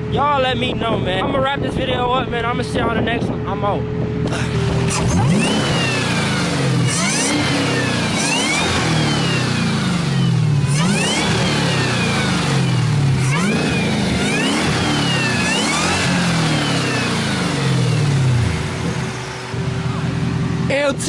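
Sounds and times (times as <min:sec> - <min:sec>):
supercharger whine: 0:00.0 - 0:21.0
car engine revving: 0:03.8 - 0:21.0.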